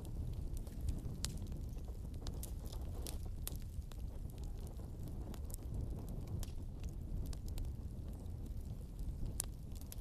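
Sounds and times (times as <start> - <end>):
fire pops and snaps: 0.0 - 10.0
wood fire crackling: 0.0 - 10.0.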